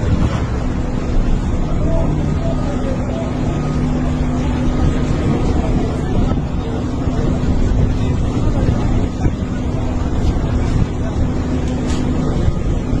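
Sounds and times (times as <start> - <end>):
engine rumbling: 0.0 - 13.0
wind buffeting microphone: 0.0 - 13.0.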